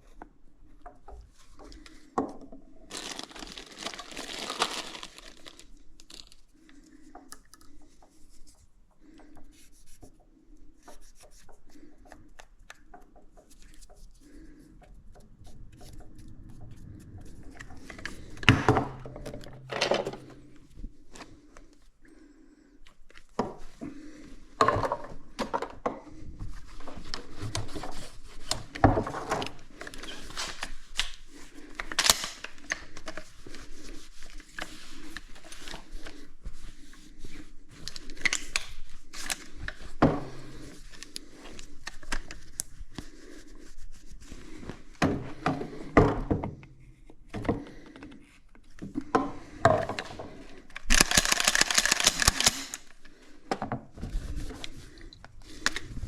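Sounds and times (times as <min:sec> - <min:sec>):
handling rustling and rubbing: 0:07.8 - 0:21.8, 0:26.3 - 0:46.0, 0:53.8 - 0:56.0
clicks and knocks: 0:14.8 - 0:20.7.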